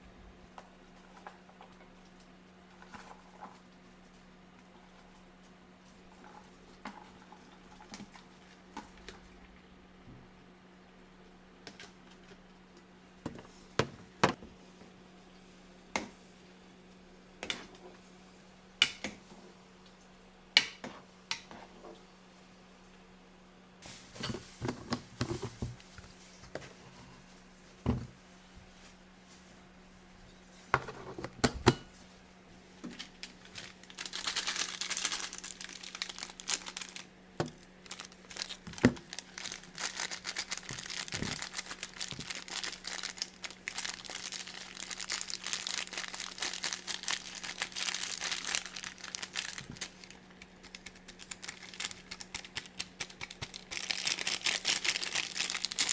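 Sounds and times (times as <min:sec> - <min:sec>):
plastic packaging crinkling: 0:23.8 - 0:27.8, 0:32.0 - 0:55.9.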